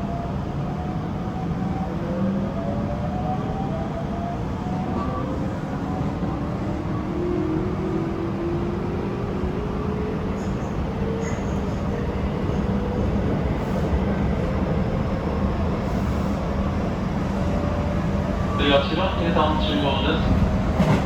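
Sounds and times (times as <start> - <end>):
wheels rumbling on rail: 4.7 - 21.0.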